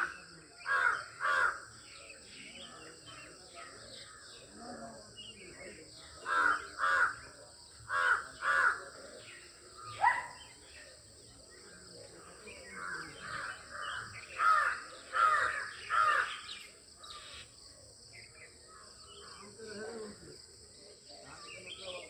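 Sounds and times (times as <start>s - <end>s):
bird cawing: 13.3s - 17.4s.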